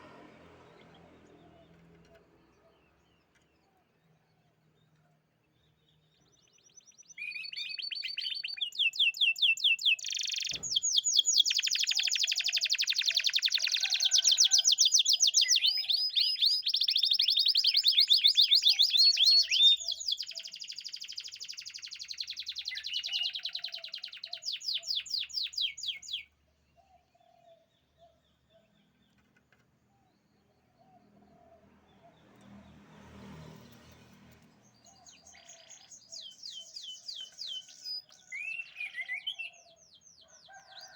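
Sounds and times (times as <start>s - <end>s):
canary singing trills: 6.2s - 29.2s, 34.7s - 40.8s.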